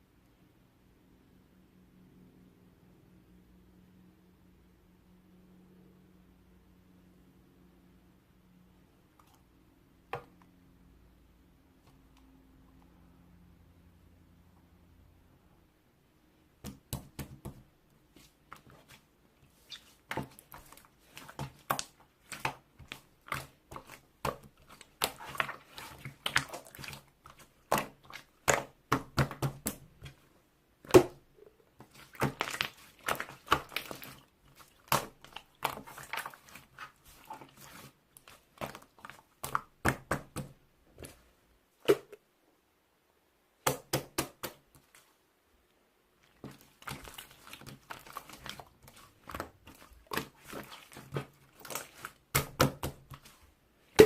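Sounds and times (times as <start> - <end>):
slime squishing by hand: 16.5 - 42.2, 46.2 - 54.0.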